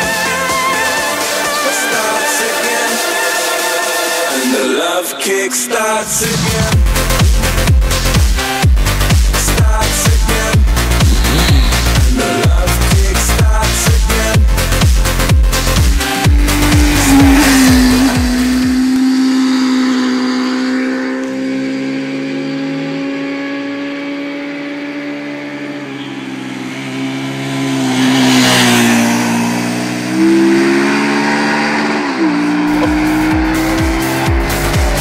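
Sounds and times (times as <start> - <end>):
motorcycle engine at high revs: 10.0 - 35.0.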